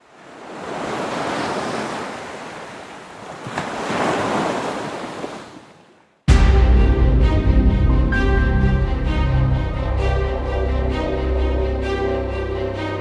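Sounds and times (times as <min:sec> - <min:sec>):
loud music: 0:06.3 - 0:13.0
sea waves washing in: 0:06.3 - 0:13.0.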